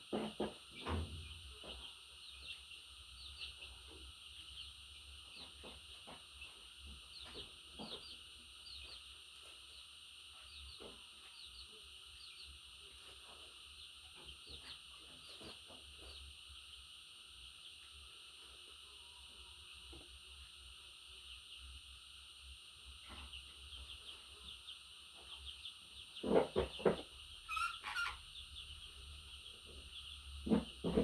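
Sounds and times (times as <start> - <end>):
budgerigar chirping softly: 23.1 - 31.0.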